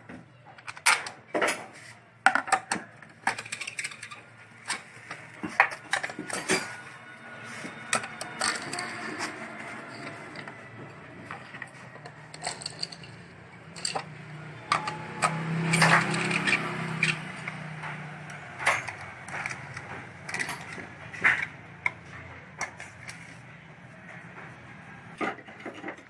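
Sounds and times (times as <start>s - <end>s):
metal parts clinking: 2.3s - 22.0s.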